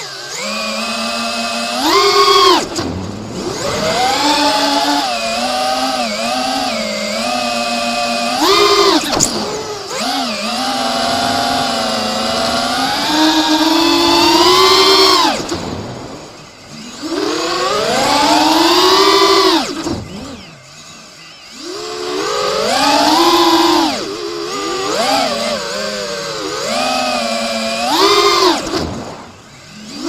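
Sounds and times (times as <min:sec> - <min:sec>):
drone motors whining: 0:00.0 - 0:30.0.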